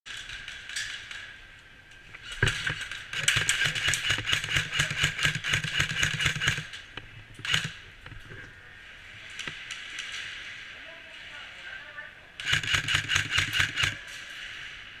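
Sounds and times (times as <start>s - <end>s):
sharp crack: 0.1s - 7.9s
airsoft gun rapid firing: 2.4s - 6.7s, 7.4s - 7.8s, 12.4s - 14.1s.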